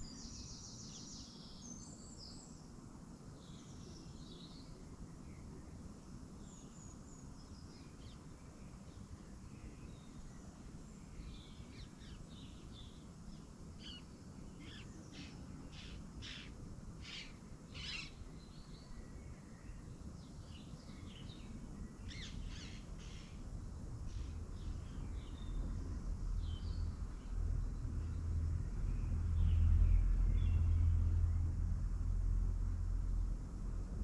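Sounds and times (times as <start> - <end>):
small birds chirping: 0.0 - 2.6, 3.3 - 31.1
low background rumble: 20.2 - 34.0.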